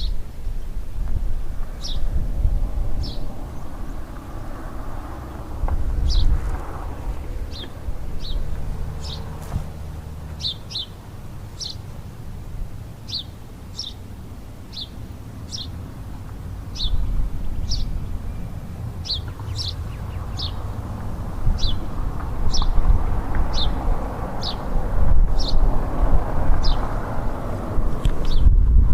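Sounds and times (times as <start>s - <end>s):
low rumble: 1.0s - 10.5s
bird chirping: 1.4s - 2.1s, 3.0s - 4.3s, 7.1s - 12.0s, 13.0s - 15.9s, 16.6s - 20.8s, 21.6s - 24.7s, 26.6s - 26.9s, 28.2s - 28.5s.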